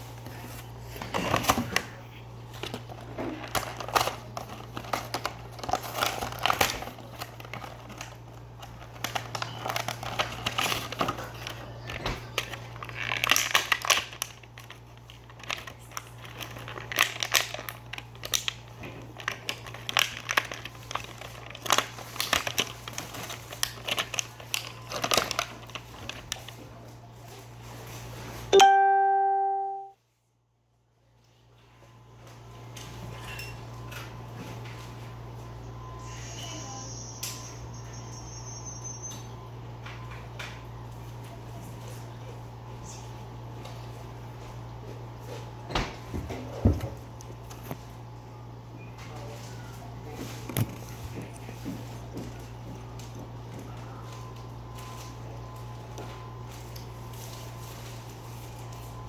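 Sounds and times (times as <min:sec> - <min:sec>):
packaging crinkling and rustling: 0:00.0 - 0:28.5, 0:49.0 - 0:59.0
musical note: 0:28.6 - 0:29.9.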